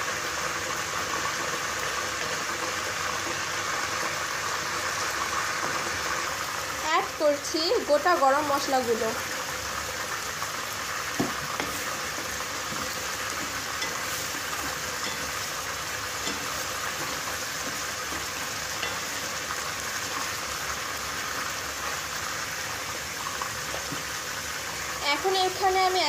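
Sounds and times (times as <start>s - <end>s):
spices sizzling in hot oil: 0.0s - 26.0s
wooden spatula scraping: 11.1s - 20.4s.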